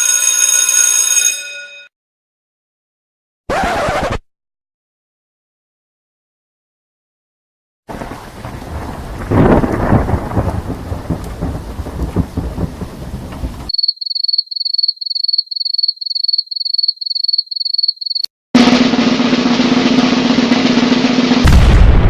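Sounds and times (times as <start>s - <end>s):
steady rain: 7.9s - 13.7s
thunder rumbling: 7.9s - 13.7s, 19.6s - 22.0s.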